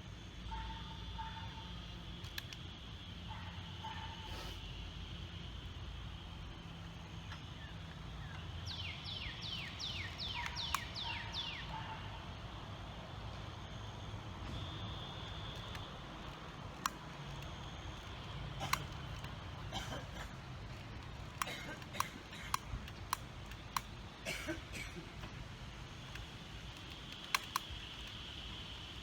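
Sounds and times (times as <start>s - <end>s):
low outdoor background: 0.0s - 29.0s
sharp clicks: 2.2s - 2.8s, 7.2s - 11.6s, 14.6s - 29.0s
bird singing: 6.7s - 12.8s.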